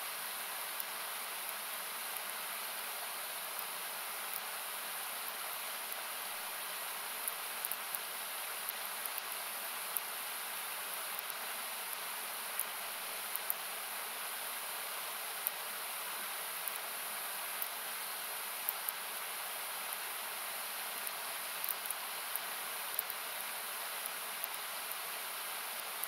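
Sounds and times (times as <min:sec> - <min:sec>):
river rushing hiss: 0:00.0 - 0:26.0
campfire crackling and popping: 0:21.0 - 0:23.2.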